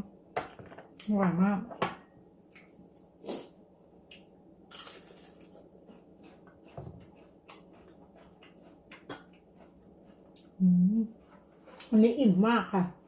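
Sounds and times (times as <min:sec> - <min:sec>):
chewing: 0:04.8 - 0:11.9.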